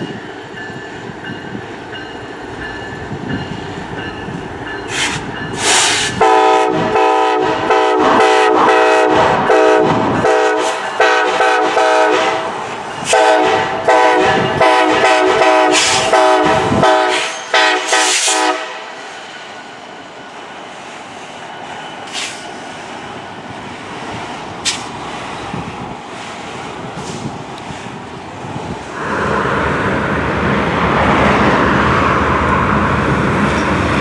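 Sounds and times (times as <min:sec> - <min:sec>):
train clicking: 0:00.0 - 0:34.0
train rumble: 0:00.0 - 0:34.0
locomotive air horn chord: 0:05.8 - 0:19.0.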